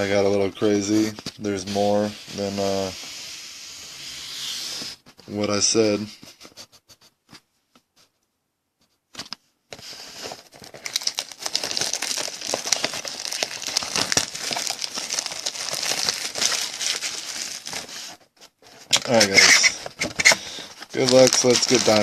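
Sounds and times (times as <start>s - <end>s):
plastic wrap crinkling and tearing: 9.8s - 18.2s, 18.8s - 22.0s.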